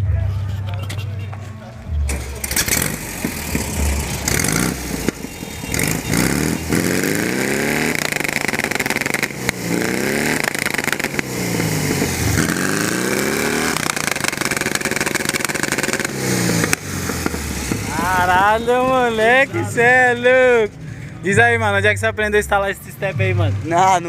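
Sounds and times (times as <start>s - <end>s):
car engine revving hard: 2.1s - 18.4s.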